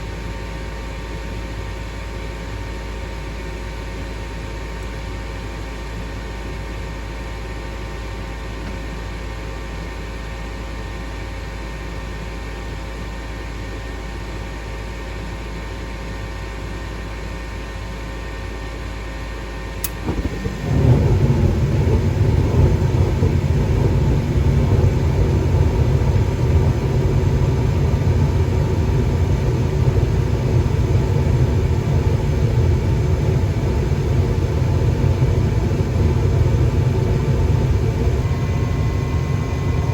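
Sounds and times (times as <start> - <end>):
furnace hum with steady tones: 0.0 - 39.9
furnace burners rumbling: 17.0 - 39.9
furnace ignition click: 19.8 - 28.6.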